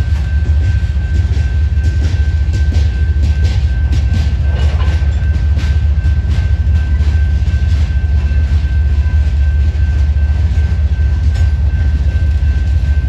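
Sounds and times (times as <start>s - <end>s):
freight train rolling past: 0.0s - 13.0s
wheels clicking over rails: 0.0s - 13.0s.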